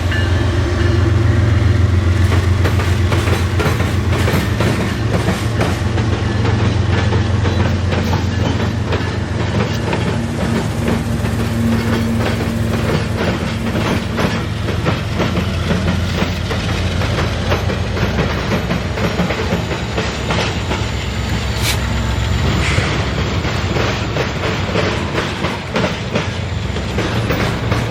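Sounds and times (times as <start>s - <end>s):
train rumble: 0.0s - 27.9s
train wheels clicking over rail joints: 0.0s - 27.9s.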